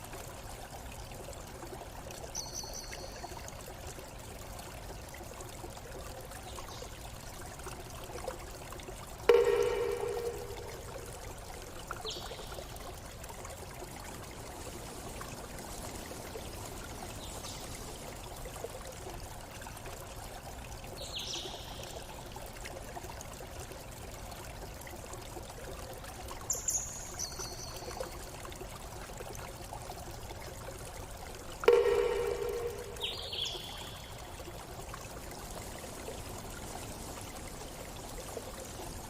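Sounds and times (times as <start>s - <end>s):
stream running: 0.0s - 39.0s
high-pitched bird calls: 31.7s - 34.0s.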